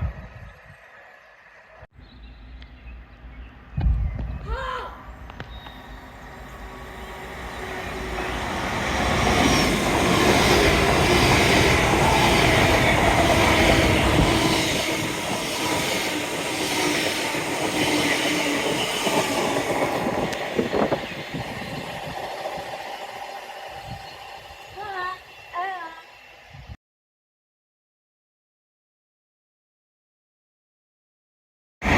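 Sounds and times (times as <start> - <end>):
train passing: 5.0 - 26.8.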